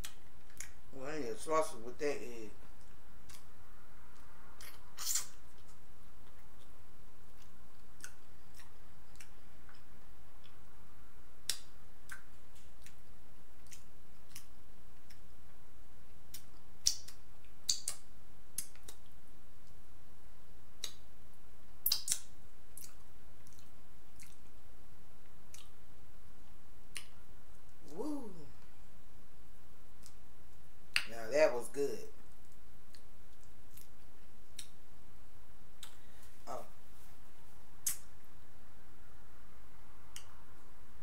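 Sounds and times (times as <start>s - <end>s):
lip smacks and clicks: 0.0s - 0.8s, 2.8s - 3.5s, 4.1s - 10.6s, 11.4s - 15.6s, 16.2s - 19.8s, 20.8s - 21.1s, 21.8s - 24.6s, 25.2s - 25.8s, 26.4s - 28.0s, 30.0s - 30.2s, 30.9s - 31.2s, 32.2s - 34.8s, 35.8s - 36.6s, 37.8s - 38.2s, 40.1s - 40.4s
wet chewing: 4.1s - 10.6s, 21.8s - 24.6s.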